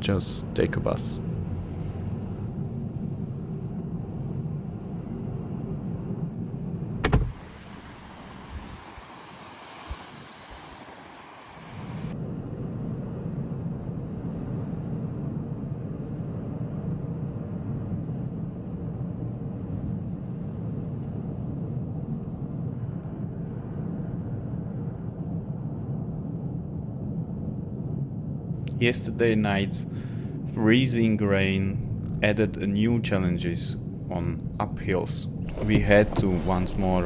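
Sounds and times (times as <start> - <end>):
car engine and tyre drone: 0.4 - 12.2, 35.4 - 37.0.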